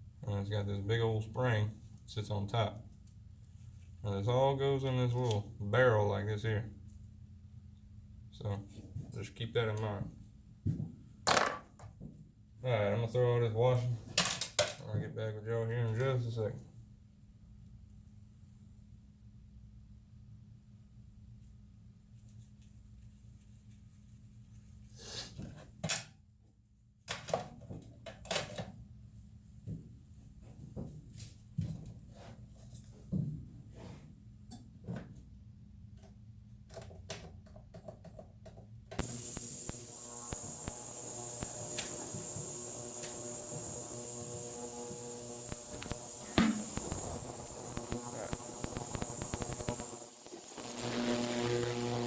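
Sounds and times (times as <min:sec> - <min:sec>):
pump motor humming and hissing: 0:39.0 - 0:52.0
small metal parts clinking: 0:39.0 - 0:52.0.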